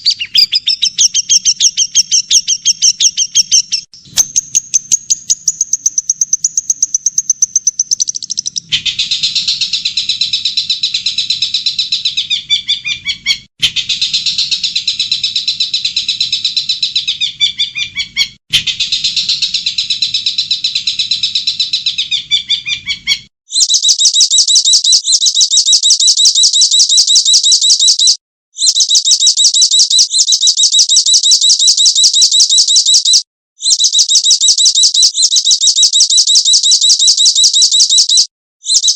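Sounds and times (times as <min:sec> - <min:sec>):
songbird twittering and warbling: 0:00.0 - 0:09.6
fast high-pitched bird trill: 0:00.0 - 0:38.9.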